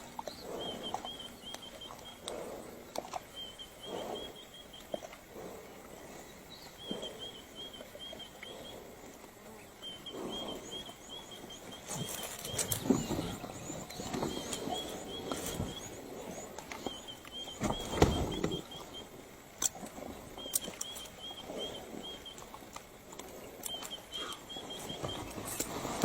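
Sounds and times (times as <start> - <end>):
thuds: 17.6 - 18.6.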